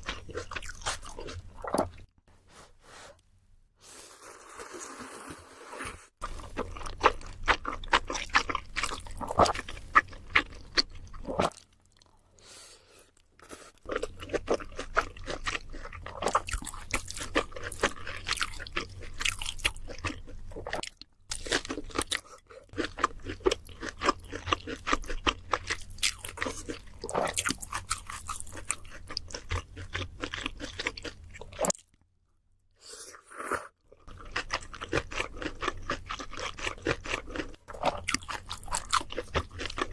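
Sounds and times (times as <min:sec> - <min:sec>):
crunching and chewing crispy food: 0:00.0 - 0:02.1, 0:06.2 - 0:12.2, 0:13.2 - 0:32.0, 0:33.1 - 0:39.9.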